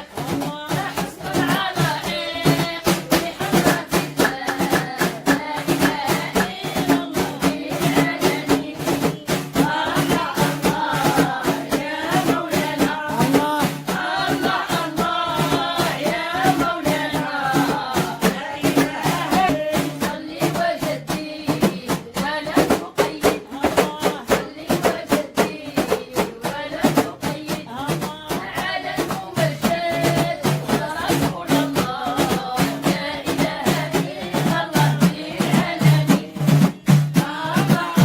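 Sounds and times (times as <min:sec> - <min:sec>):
person chanting melodically: 0:00.0 - 0:21.6
steady drum beat: 0:00.0 - 0:38.0.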